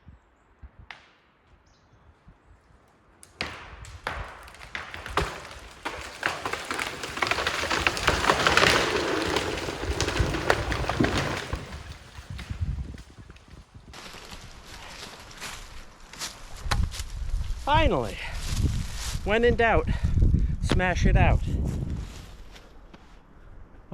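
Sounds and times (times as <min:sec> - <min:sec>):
wood and branches snapping: 0:03.2 - 0:17.2
tree crashing through branches: 0:03.3 - 0:17.1.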